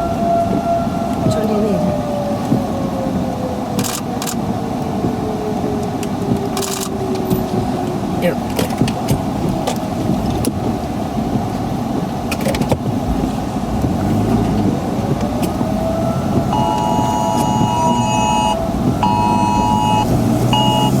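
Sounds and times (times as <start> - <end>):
in-vehicle rumble: 0.0 - 21.0
phone emergency alert tone: 16.5 - 21.0.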